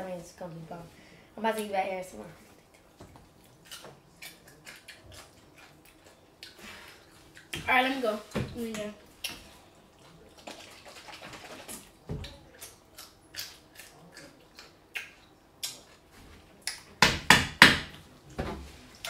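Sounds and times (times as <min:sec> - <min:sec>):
pickle crunching: 0:02.5 - 0:07.6, 0:11.6 - 0:16.9.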